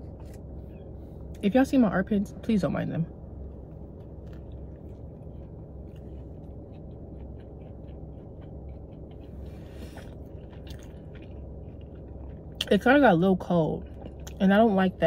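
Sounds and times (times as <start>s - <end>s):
person chewing and biting: 0.0s - 1.4s, 3.4s - 12.7s, 13.8s - 14.4s
steady low hum: 0.0s - 15.0s.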